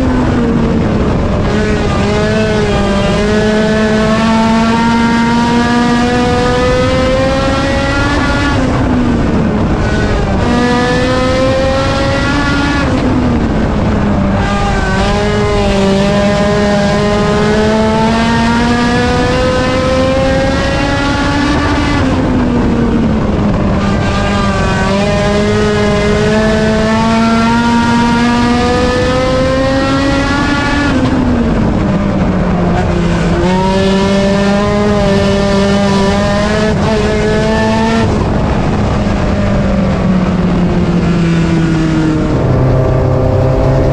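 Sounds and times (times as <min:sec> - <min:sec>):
race car engine: 0:00.0 - 0:43.9.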